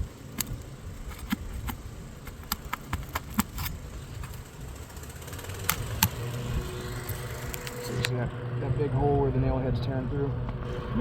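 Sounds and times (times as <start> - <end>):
shingle cracking as pried loose: 0.0 - 6.2.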